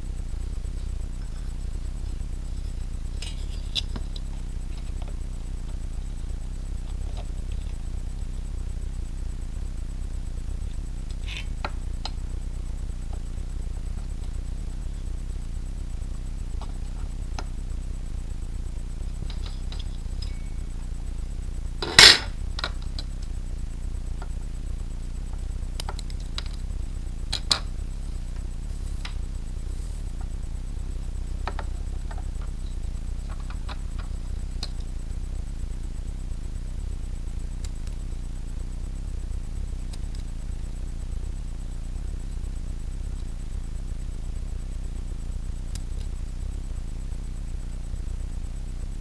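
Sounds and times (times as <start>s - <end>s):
steady low hum: 0.0s - 49.0s
small hard parts clicking: 21.8s - 23.3s.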